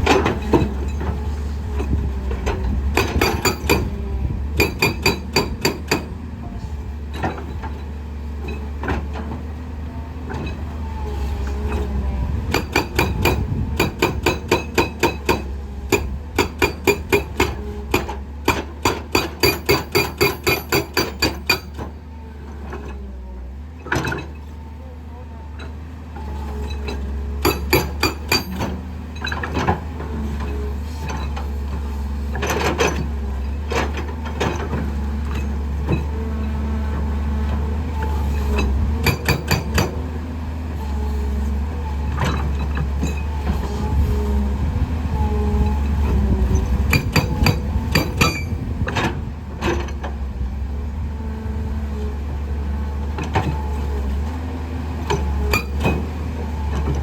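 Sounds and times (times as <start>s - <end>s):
diesel engine hum: 0.0s - 57.0s
hydraulic breaker hammering rock: 1.8s - 6.2s, 12.4s - 22.0s, 26.8s - 29.9s, 38.5s - 40.1s, 46.5s - 50.1s, 55.0s - 56.1s.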